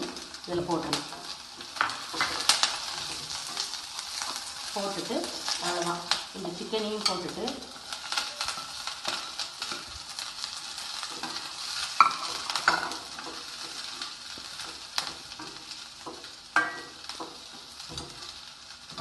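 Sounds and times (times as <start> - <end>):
oil sizzling: 0.0 - 19.0
spatula scraping and knocking a pan: 8.0 - 19.0.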